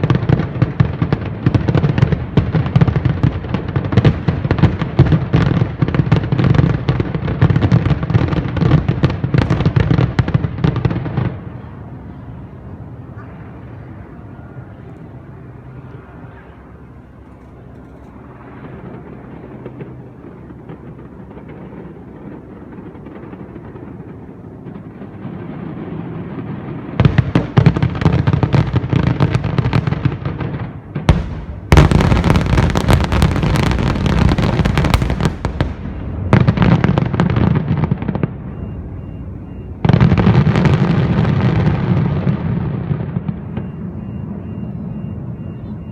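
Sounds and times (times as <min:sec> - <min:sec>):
fireworks booming and crackling: 0:00.0 - 0:45.9
low background noise: 0:00.0 - 0:45.9.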